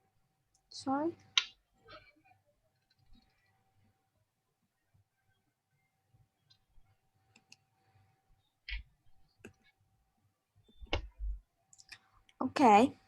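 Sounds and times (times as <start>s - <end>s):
faint steady tone: 1.8s - 12.2s
faint clicks and taps: 7.3s - 7.7s, 8.6s - 9.8s.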